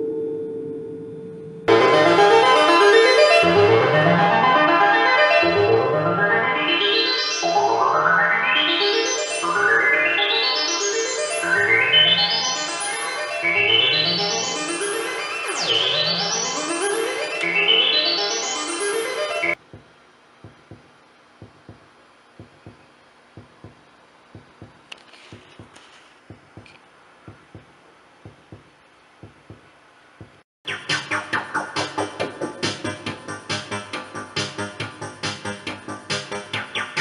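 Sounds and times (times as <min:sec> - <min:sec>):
soft low synth blips: 0:19.6 - 0:25.7.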